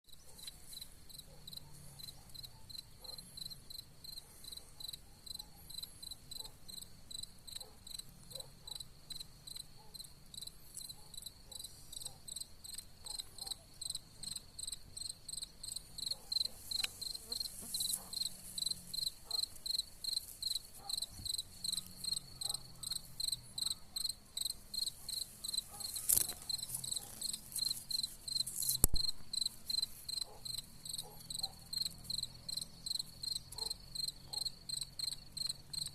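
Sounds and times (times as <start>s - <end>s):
cicadas singing: 0.1s - 35.9s
sharp click: 28.6s - 29.2s.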